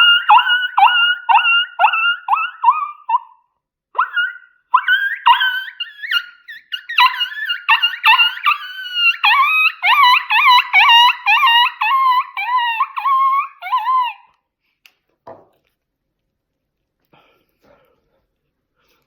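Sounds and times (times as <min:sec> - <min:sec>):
coyote call yelping: 0:00.0 - 0:03.4, 0:04.0 - 0:14.4.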